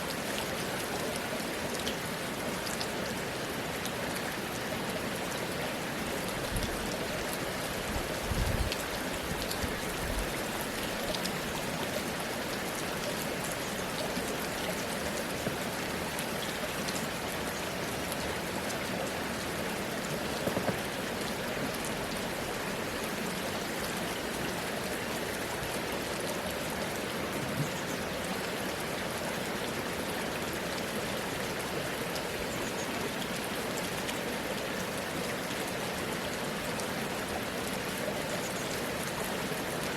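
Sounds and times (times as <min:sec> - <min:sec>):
steady rain falling: 0:00.0 - 0:39.9
raindrop ticks: 0:20.0 - 0:21.9.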